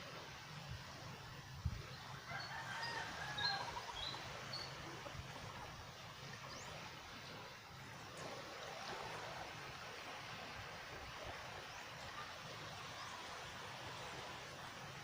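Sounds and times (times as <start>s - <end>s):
rooster crowing: 2.3s - 3.9s.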